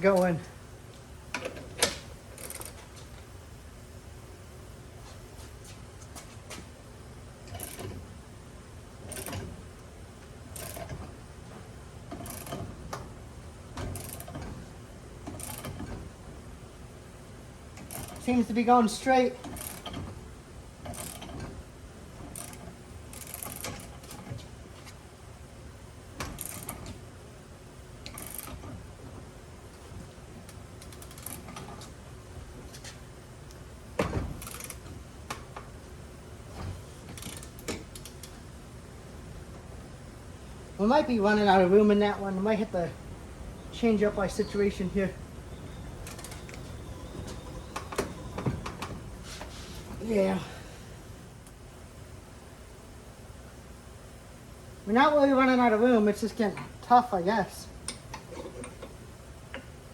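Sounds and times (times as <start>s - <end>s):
ratchet turning a press screw: 7.5s - 7.9s, 12.1s - 12.7s, 13.8s - 14.4s, 15.3s - 15.9s, 17.8s - 18.3s, 19.4s - 20.1s, 20.8s - 21.5s, 22.3s - 24.3s, 26.2s - 26.8s, 28.0s - 28.6s.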